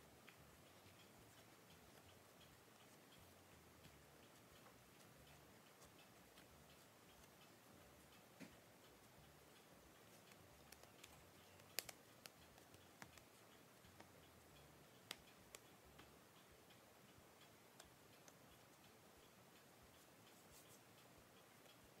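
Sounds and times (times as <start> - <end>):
hands kneading dough clicks: 10.3 - 14.1.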